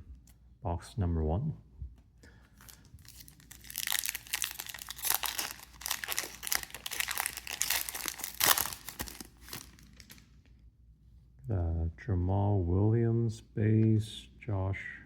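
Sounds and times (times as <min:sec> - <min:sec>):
wrapper tearing and crinkling: 0:02.6 - 0:10.3.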